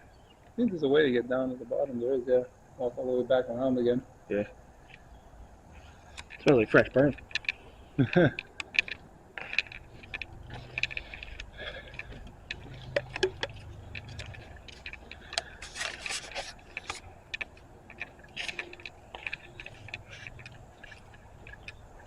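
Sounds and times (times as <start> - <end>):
footsteps crunching over debris: 5.6 - 22.0.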